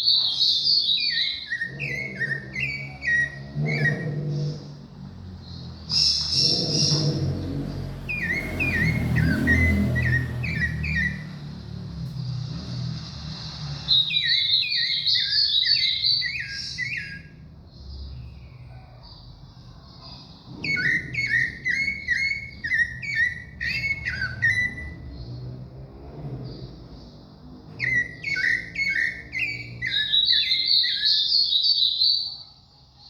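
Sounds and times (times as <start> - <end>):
thrush singing whistled notes: 0.0 - 4.9, 5.6 - 11.6, 12.5 - 18.7, 20.4 - 32.4.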